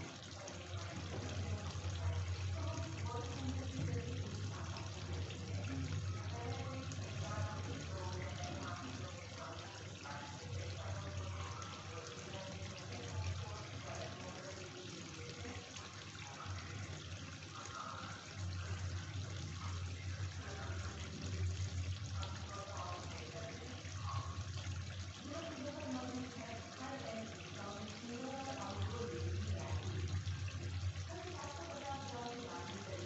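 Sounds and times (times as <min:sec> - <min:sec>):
curry sizzling in oil: 0:00.0 - 0:33.0.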